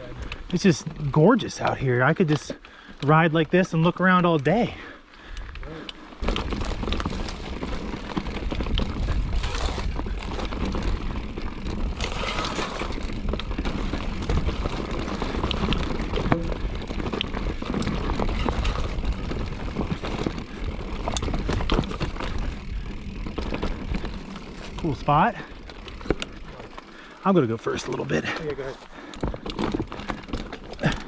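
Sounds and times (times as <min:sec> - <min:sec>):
bike clicking and rattling: 0:00.0 - 0:31.0
wind rumble on microphone: 0:06.2 - 0:24.9.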